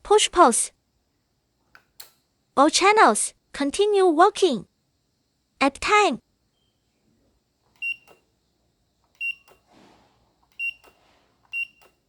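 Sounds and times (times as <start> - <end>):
click: 1.7 - 2.2, 7.7 - 8.2.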